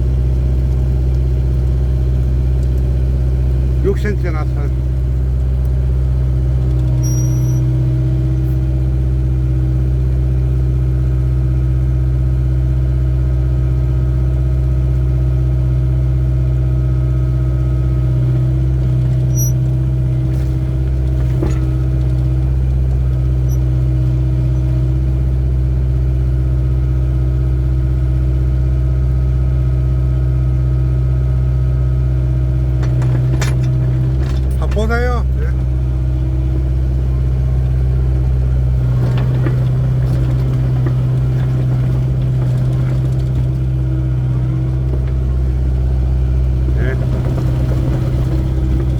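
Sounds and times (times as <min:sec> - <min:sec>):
excavator diesel engine running: 0:00.0 - 0:48.9
metal clank: 0:32.8 - 0:34.8.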